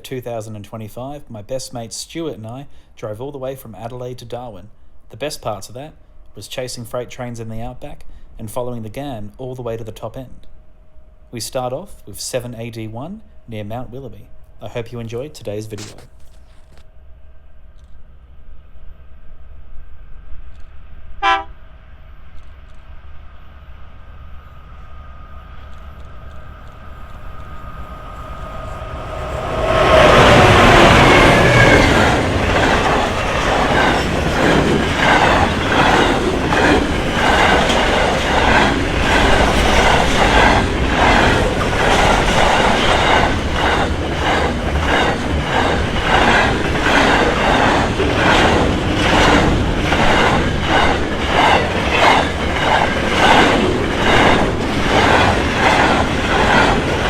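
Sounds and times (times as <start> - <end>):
diesel locomotive passing: 0.0 - 57.0
train wheels clacking on rails: 15.6 - 16.8, 25.6 - 57.0.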